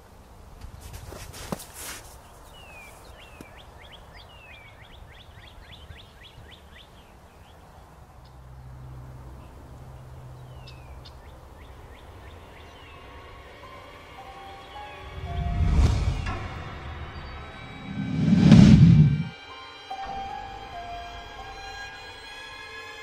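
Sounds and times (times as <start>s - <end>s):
rush of noise: 14.2s - 19.4s.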